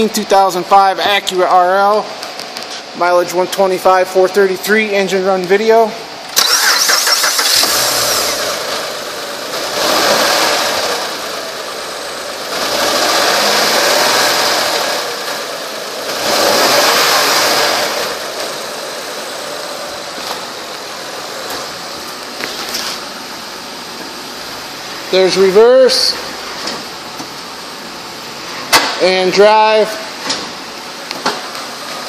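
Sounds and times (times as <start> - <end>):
car engine running: 6.4 - 25.1.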